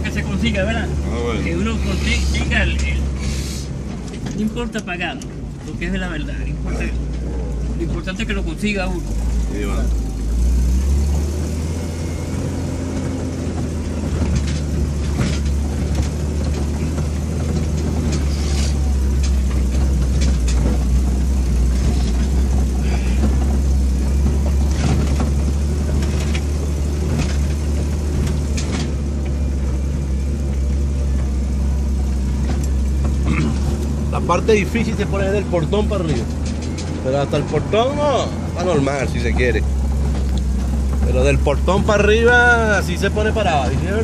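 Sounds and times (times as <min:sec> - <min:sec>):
vehicle engine running under load: 0:00.0 - 0:44.0
knocks and rattles: 0:12.4 - 0:44.0.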